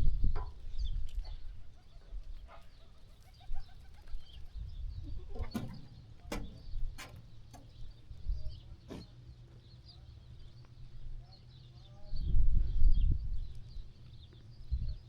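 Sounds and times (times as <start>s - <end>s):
birds chirping and cooing: 0.8s - 10.5s
low background rumble: 3.7s - 11.3s
sharp clicks and knocks: 5.4s - 8.1s.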